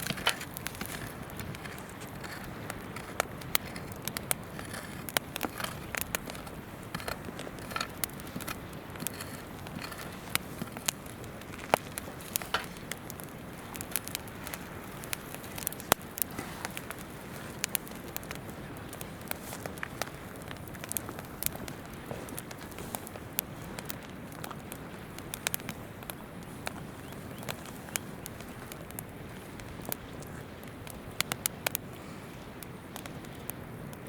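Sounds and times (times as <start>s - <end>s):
campfire crackling: 0.0s - 34.0s.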